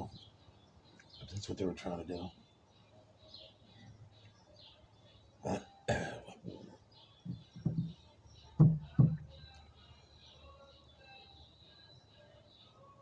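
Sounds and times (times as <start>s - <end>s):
man coughing: 5.5s - 6.4s
man clearing his throat: 5.5s - 6.6s.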